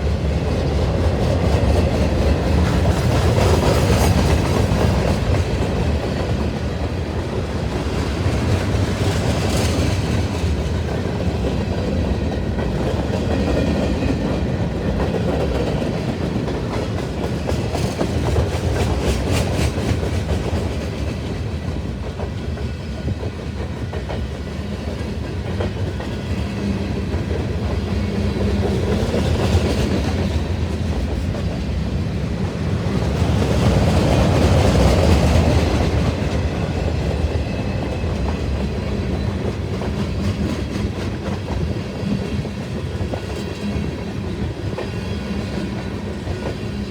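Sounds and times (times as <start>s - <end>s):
train cars rumbling: 0.0s - 46.9s.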